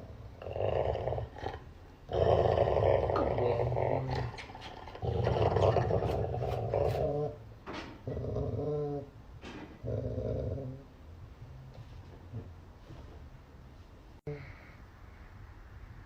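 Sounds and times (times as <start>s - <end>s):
dog growling: 0.0s - 7.4s, 8.0s - 9.2s, 9.8s - 10.9s.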